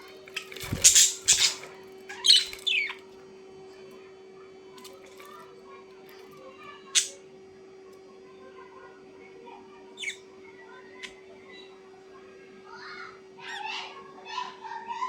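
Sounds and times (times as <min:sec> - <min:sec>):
bird squawking: 0:00.0 - 0:03.0.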